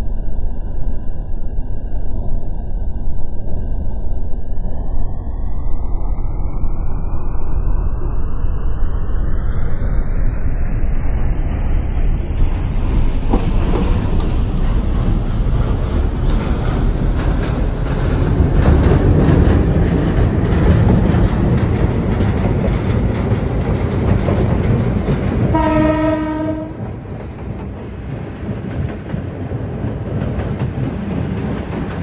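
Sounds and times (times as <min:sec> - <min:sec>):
train rumbling past: 0:06.1 - 0:32.0
wheels clattering over rails: 0:13.3 - 0:32.0
train horn blast: 0:25.5 - 0:27.0.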